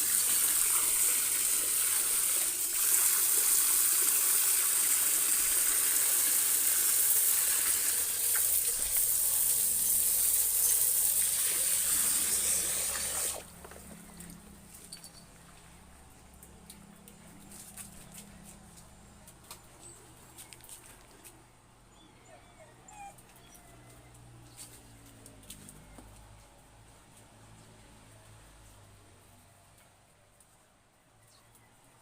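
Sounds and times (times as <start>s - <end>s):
running water rushing: 0.0s - 13.5s.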